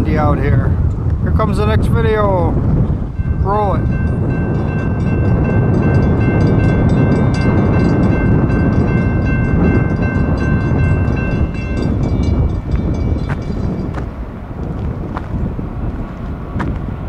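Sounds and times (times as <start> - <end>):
train rumbling past: 2.6 - 17.0
high-pitched multi-tone ringing: 3.2 - 14.0.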